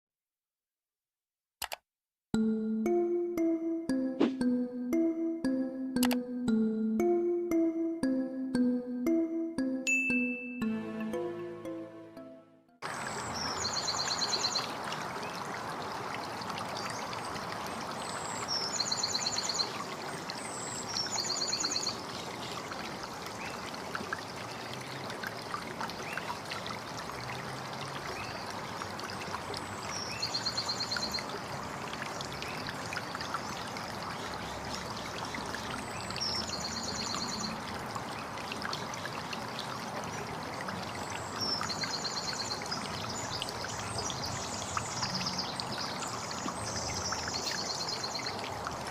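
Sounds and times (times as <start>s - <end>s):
trickling water: 12.8s - 48.9s.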